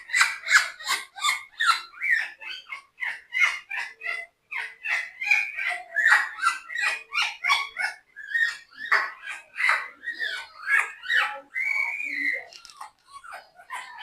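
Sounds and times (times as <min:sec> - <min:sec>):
parrot whispering: 0:09.2 - 0:14.0.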